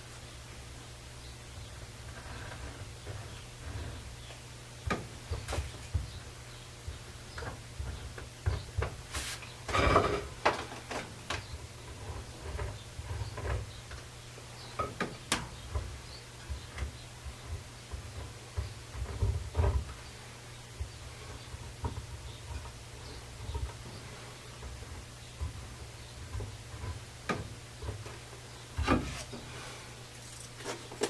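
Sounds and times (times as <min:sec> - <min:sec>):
steady low hum: 0:00.0 - 0:31.0
wooden chair parts knocking: 0:14.8 - 0:20.1.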